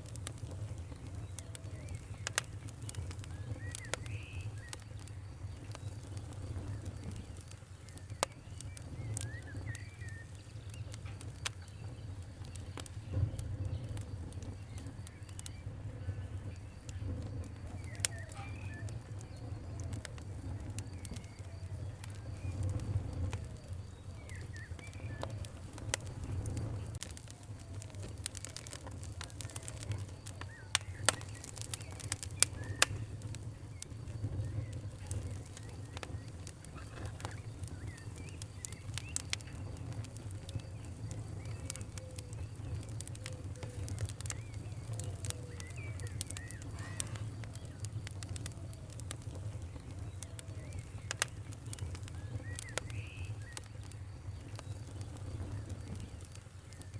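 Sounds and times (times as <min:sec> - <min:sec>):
faint bird chirps: 0:00.0 - 0:56.9
wood fire crackling and popping: 0:00.0 - 0:56.9.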